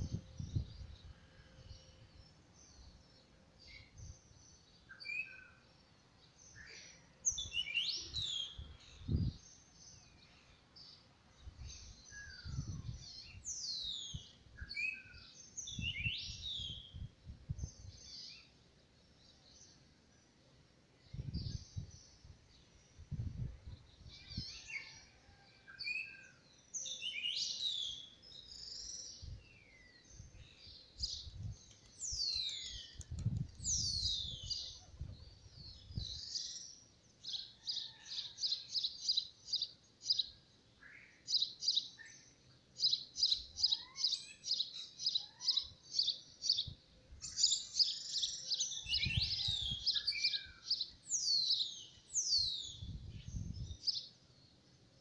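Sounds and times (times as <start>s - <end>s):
birds chirping and calling: 26.8s - 40.3s, 41.0s - 54.1s.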